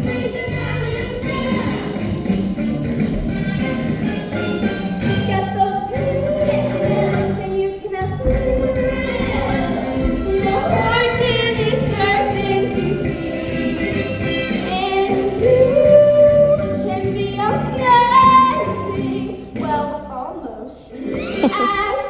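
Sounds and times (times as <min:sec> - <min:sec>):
instrumental accompaniment: 0:00.0 - 0:17.2
singers and chorus singing: 0:05.3 - 0:19.6.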